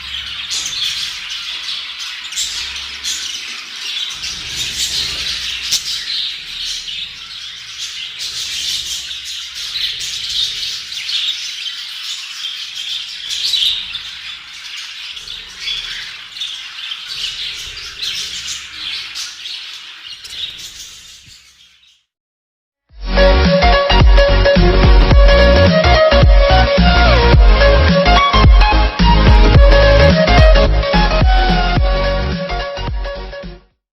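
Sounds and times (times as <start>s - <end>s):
budgerigars chattering and chirping: 0.0s - 22.0s.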